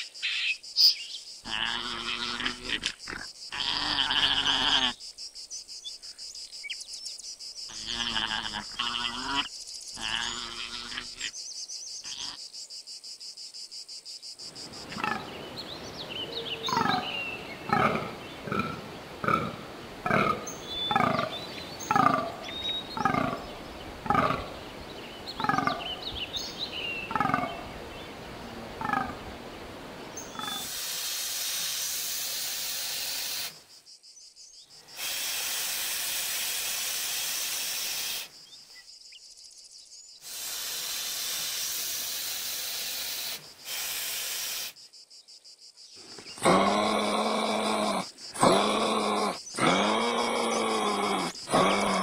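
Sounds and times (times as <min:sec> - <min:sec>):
deer groaning: 0:01.5 - 0:05.0, 0:07.7 - 0:11.3, 0:16.7 - 0:17.1, 0:17.7 - 0:21.3, 0:23.0 - 0:24.6, 0:25.4 - 0:25.9, 0:27.1 - 0:27.6, 0:46.4 - 0:52.0
iguana hissing: 0:01.5 - 0:05.0, 0:07.7 - 0:11.3, 0:16.6 - 0:17.1, 0:25.4 - 0:25.8, 0:30.2 - 0:33.6, 0:34.9 - 0:38.4, 0:40.2 - 0:44.8, 0:46.3 - 0:52.0.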